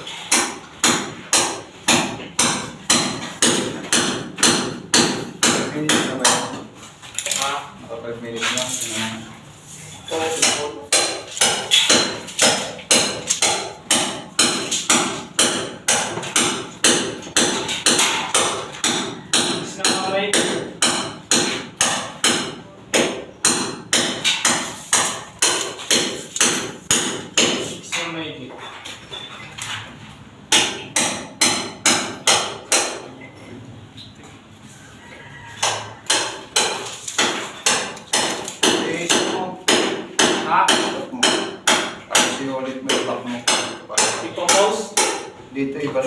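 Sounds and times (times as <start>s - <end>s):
hammer striking: 0.0s - 6.7s, 10.3s - 28.0s, 30.5s - 33.2s, 35.6s - 45.4s.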